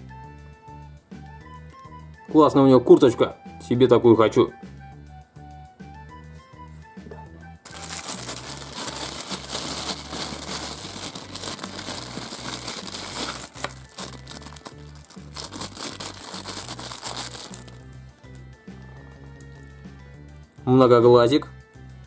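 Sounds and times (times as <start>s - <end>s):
background music with bass: 0.0s - 22.0s
plastic bag crinkling: 7.7s - 17.8s.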